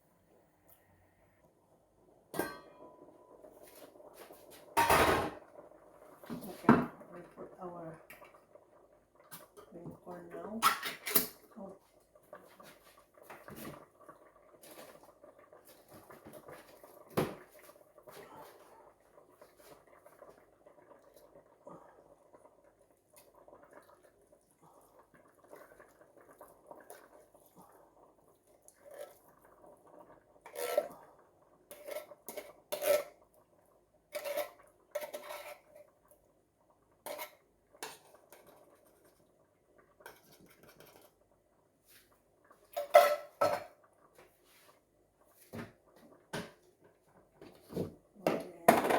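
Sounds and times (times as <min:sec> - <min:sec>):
utensil stirring in pot: 0:23.4 - 0:33.4, 0:34.1 - 0:36.1, 0:37.0 - 0:41.3.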